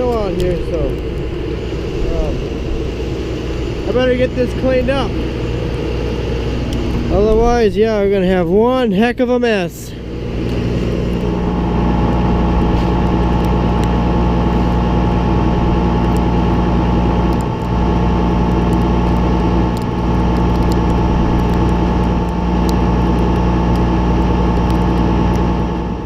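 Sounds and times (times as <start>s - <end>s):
tractor engine running: 0.0s - 26.0s
faint rattles and clicks: 17.2s - 25.5s.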